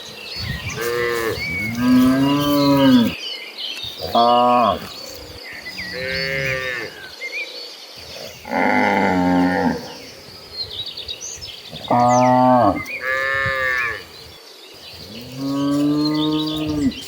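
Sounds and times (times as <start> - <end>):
faint chirping: 0.0 - 17.0
cattle mooing: 0.7 - 3.2, 5.6 - 7.1, 8.3 - 10.0, 11.8 - 14.1, 15.1 - 17.0.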